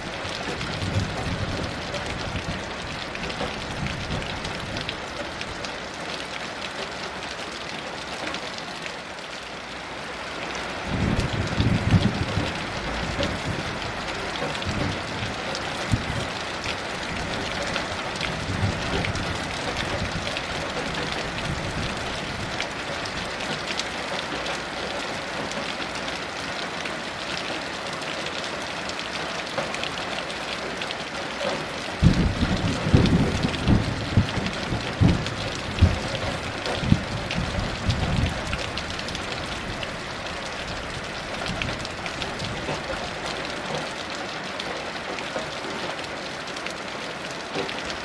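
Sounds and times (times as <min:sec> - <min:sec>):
raindrop ticks: 0:00.0 - 0:09.5, 0:10.4 - 0:48.0
heavy rain falling: 0:00.0 - 0:48.0
distant thunder rumble: 0:10.9 - 0:16.3, 0:32.0 - 0:38.8.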